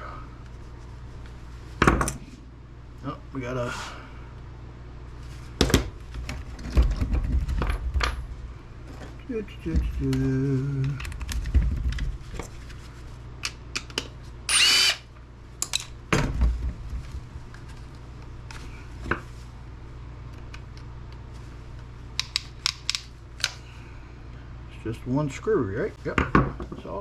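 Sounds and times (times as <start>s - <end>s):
power driver whirring: 14.5s - 15.1s.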